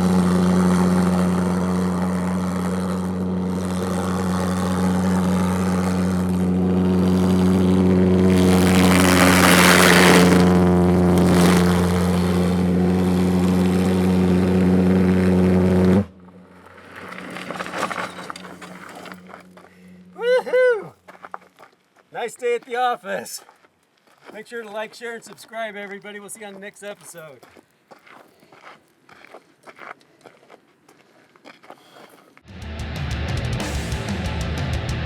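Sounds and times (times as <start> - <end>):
pulsejet engines droning: 0.0 - 20.9.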